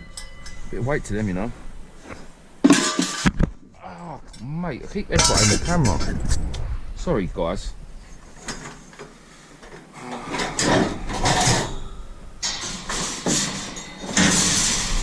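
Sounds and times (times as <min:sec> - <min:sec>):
scrap metal scraping and clattering: 0:02.6 - 0:03.4, 0:05.1 - 0:06.2, 0:10.2 - 0:15.0.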